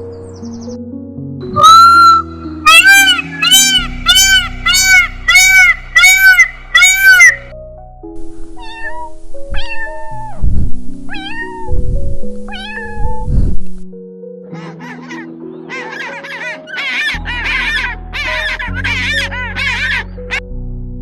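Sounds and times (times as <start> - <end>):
background music: 0.0 - 21.0
cat meowing: 1.6 - 7.4, 8.6 - 10.4, 11.1 - 11.8, 12.5 - 13.3
chirp-like calls: 1.6 - 7.5, 14.5 - 20.4.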